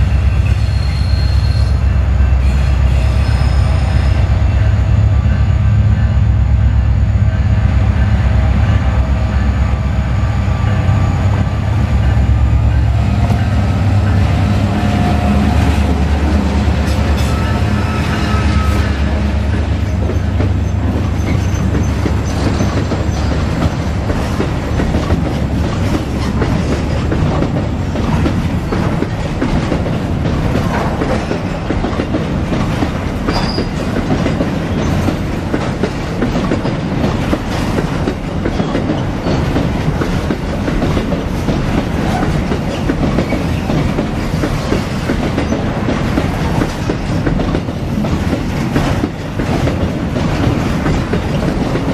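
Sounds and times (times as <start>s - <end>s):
diesel locomotive drone: 0.0s - 51.9s
train wheels clacking over rail joints: 18.6s - 51.9s.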